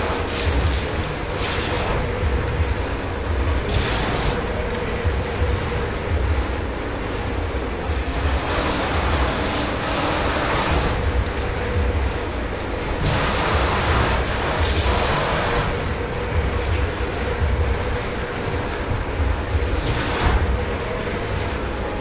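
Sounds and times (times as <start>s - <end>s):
low machine hum: 0.0s - 22.0s
water spraying: 0.0s - 22.0s.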